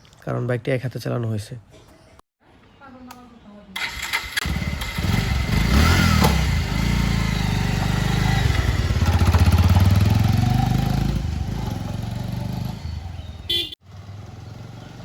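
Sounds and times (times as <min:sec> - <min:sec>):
motorcycle engine revving: 0:03.8 - 0:15.0.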